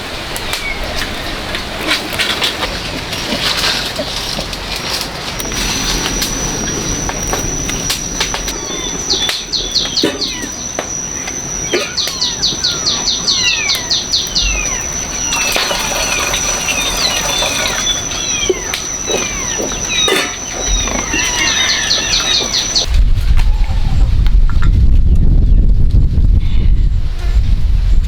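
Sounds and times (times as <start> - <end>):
birds chirping and whistling: 5.4 - 22.9.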